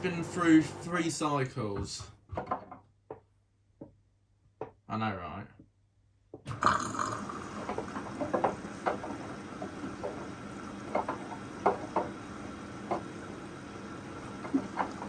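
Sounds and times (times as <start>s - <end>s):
water sloshing in washing machine: 0.0s - 1.1s, 6.5s - 15.0s
running water: 0.0s - 1.8s, 6.5s - 15.0s.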